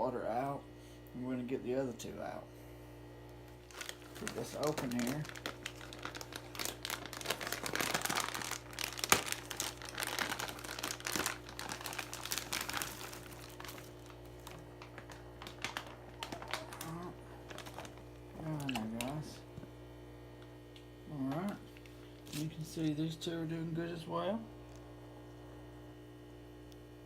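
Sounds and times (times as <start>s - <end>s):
steady hum: 0.0s - 27.0s
plastic bag crinkling: 3.5s - 19.4s
person murmuring: 16.6s - 17.5s, 18.3s - 19.4s.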